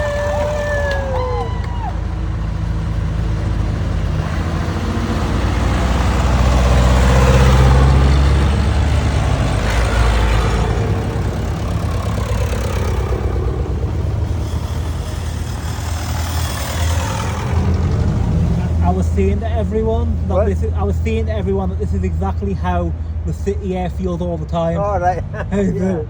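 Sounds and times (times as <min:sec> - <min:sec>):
road noise inside vehicle: 0:00.0 - 0:26.0
vehicle engine hum: 0:00.0 - 0:26.0.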